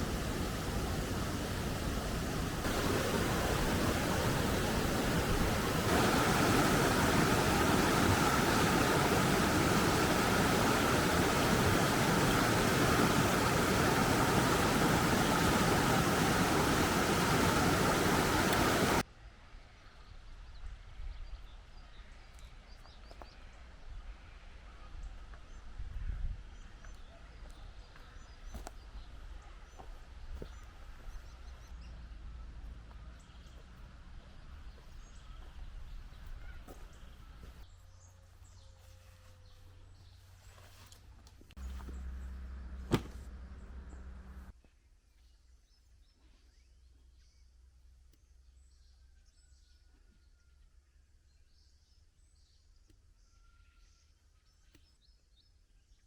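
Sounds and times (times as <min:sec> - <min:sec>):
faint ticks and chirps: 0:00.0 - 0:19.0
heavy rain: 0:00.0 - 0:19.0.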